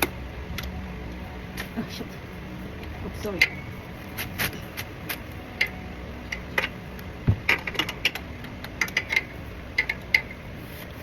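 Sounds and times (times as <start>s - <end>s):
dull knock: 7.3s - 7.5s.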